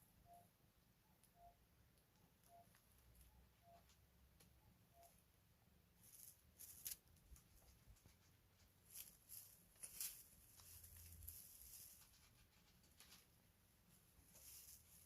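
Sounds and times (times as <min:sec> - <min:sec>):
kittens scratching and tapping: 0:06.0 - 0:15.0.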